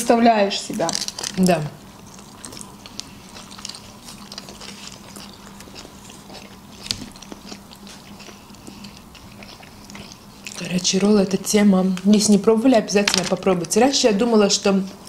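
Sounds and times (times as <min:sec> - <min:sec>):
faint steady hum: 0:00.0 - 0:15.0
people chewing: 0:00.6 - 0:15.0.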